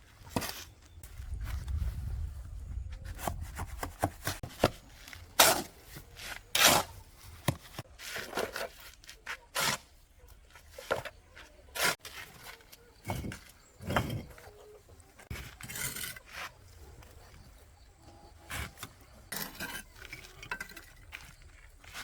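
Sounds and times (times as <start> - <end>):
scraping: 10.6 - 17.5.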